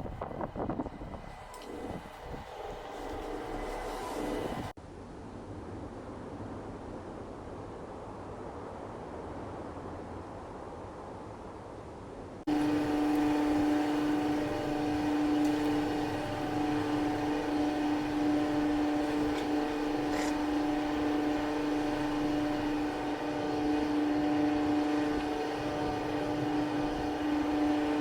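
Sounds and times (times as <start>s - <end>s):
motor humming: 0.0s - 4.7s, 12.5s - 28.0s.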